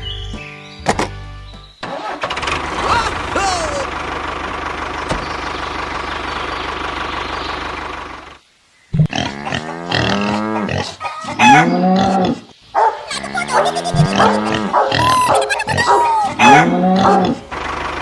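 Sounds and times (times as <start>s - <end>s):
small tractor engine running: 2.0s - 8.4s, 17.5s - 18.0s
farm animals calling: 9.0s - 17.6s.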